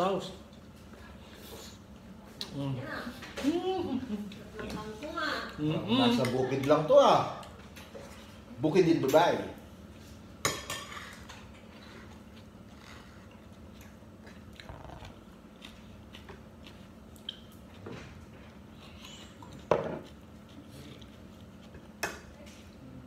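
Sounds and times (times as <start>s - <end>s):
person chewing food: 11.3s - 22.0s.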